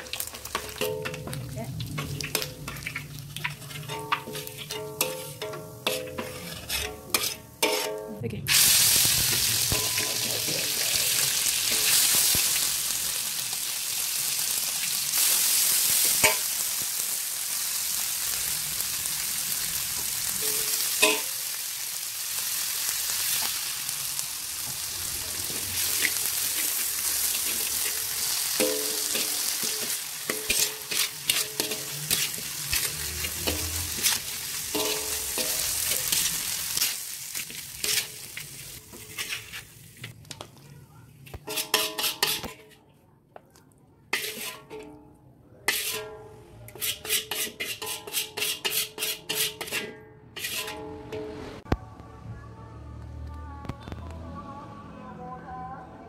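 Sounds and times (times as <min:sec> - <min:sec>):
chilies sizzling in oil: 0:00.0 - 0:40.5, 0:41.3 - 0:42.7, 0:44.1 - 0:44.7, 0:45.6 - 0:46.2, 0:46.8 - 0:51.7
metal spatula scraping a wok: 0:00.1 - 0:12.3, 0:15.9 - 0:16.6, 0:20.0 - 0:21.4, 0:24.8 - 0:40.2, 0:41.3 - 0:42.9, 0:44.1 - 0:45.0, 0:45.6 - 0:51.7.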